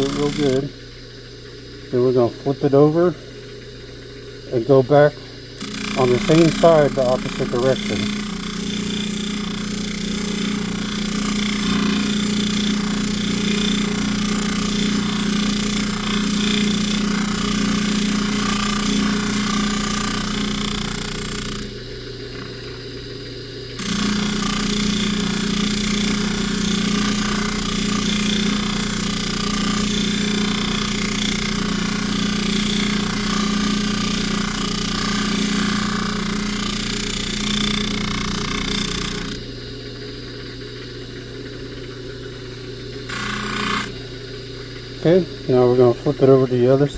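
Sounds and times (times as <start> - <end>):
polishing wheel rubbing chain: 0.0 - 0.6, 5.6 - 21.7, 23.8 - 39.4
buffer motor hum: 0.0 - 46.9.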